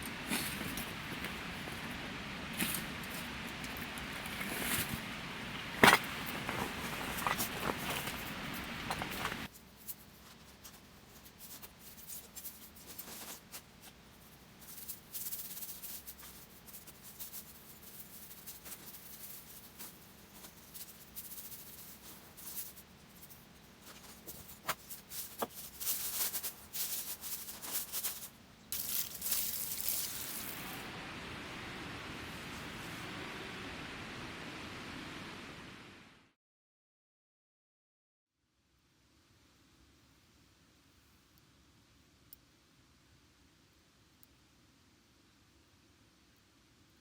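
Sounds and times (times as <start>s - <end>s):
dry rustling and scraping: 0.0s - 30.9s.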